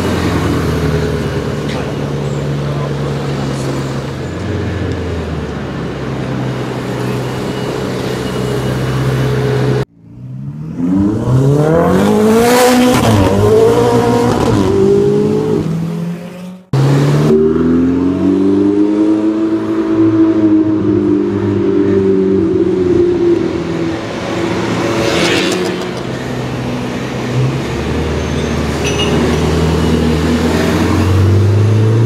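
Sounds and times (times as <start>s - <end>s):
car engine accelerating: 9.0s - 32.0s.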